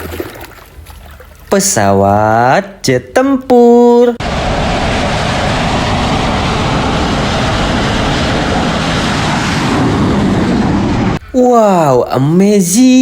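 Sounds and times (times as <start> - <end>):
jet aircraft roar: 4.1 - 11.2.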